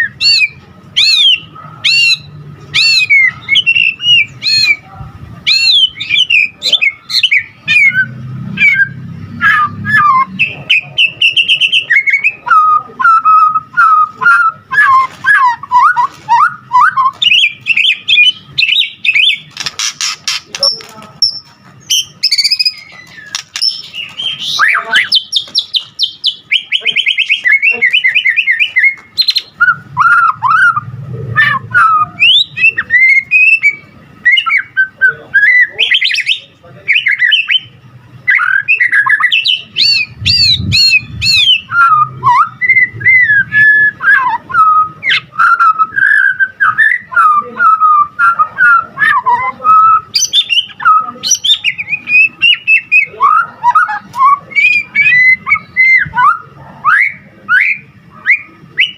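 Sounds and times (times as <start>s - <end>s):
songbird singing: 0.0s - 58.9s.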